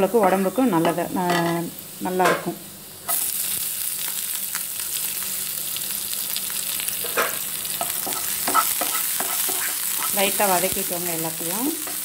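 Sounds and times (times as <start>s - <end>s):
vegetables sizzling in oil: 0.0s - 12.0s
spatula knocking pan: 7.2s - 10.2s.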